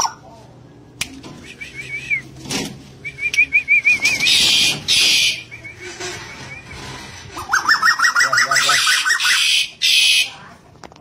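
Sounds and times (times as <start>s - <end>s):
bird whistled calls: 3.0s - 6.8s, 7.4s - 10.3s.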